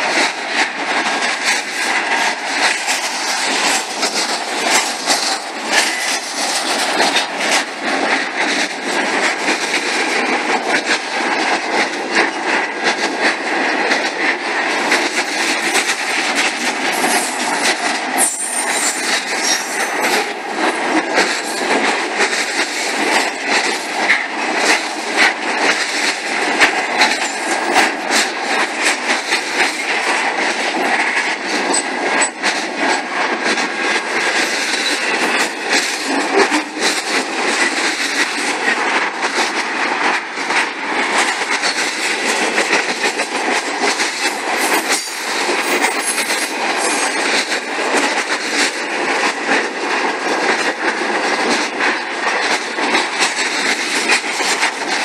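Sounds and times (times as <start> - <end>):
train wheels rushing on rail: 0.0 - 55.0
wheels clicking over rail joints: 0.0 - 55.0.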